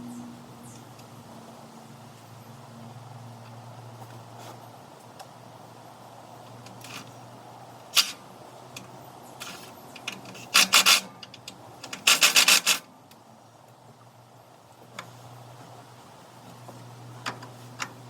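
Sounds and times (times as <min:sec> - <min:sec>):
scraping and rubbing on metal: 0:09.4 - 0:11.2, 0:11.9 - 0:12.8.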